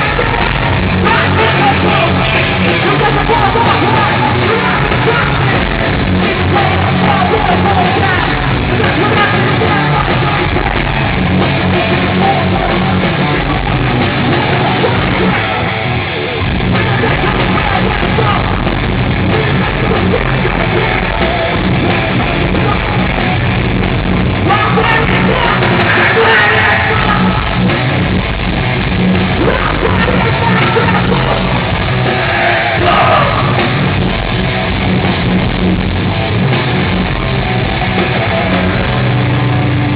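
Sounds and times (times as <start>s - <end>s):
loud rock band: 0.0s - 39.9s
person yelling vocals: 24.4s - 27.4s, 29.4s - 31.6s, 32.3s - 33.6s.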